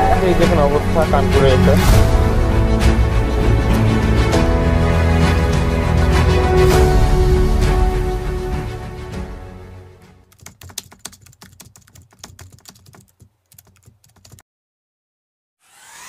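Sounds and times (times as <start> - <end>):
background music: 0.0 - 10.3.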